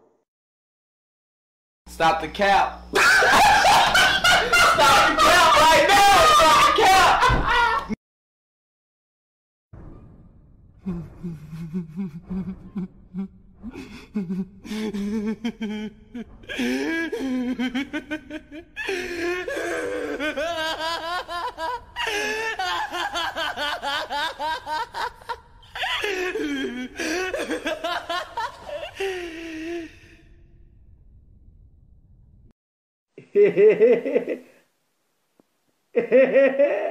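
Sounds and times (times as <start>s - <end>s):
higher-pitched laughing: 3.0s - 8.0s, 10.9s - 29.6s
deep low chuckling: 10.8s - 30.2s.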